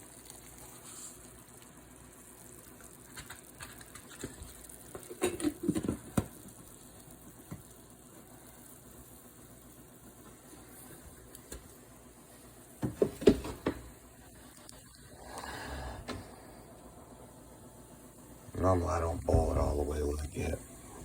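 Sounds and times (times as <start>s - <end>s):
faint hiss of water: 0.0s - 21.0s
kitchen knocks: 12.8s - 13.8s.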